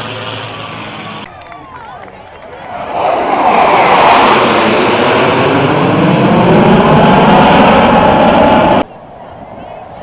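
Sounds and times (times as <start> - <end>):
airplane flying past low: 2.5 - 8.9.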